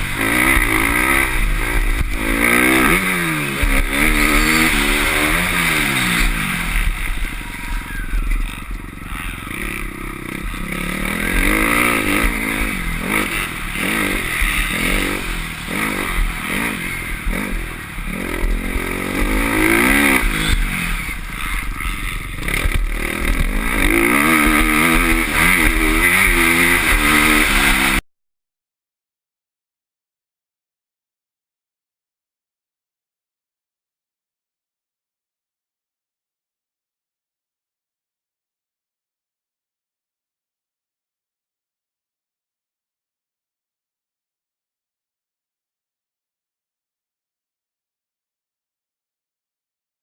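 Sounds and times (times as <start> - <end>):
motorbike engine revving: 0.0 - 28.0
rush of noise: 0.0 - 28.0.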